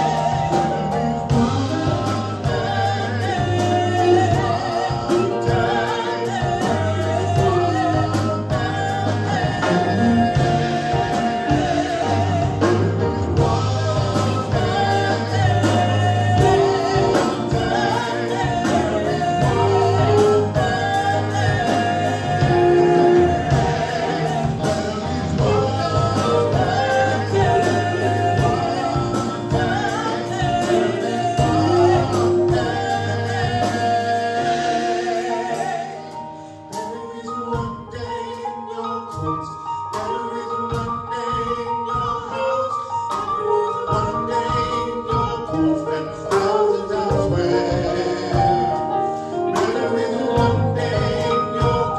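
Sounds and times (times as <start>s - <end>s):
gospel band and singers: 0.0s - 51.9s.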